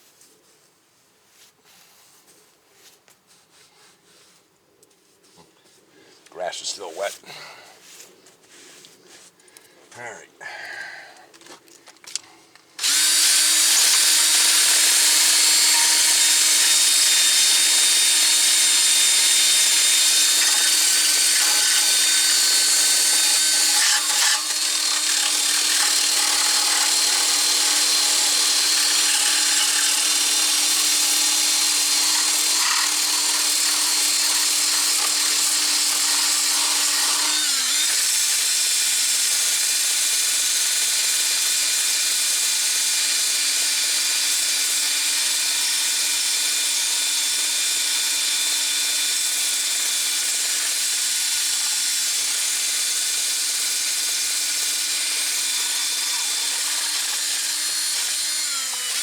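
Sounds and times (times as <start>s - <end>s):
power tool scouring metal: 12.8s - 59.0s.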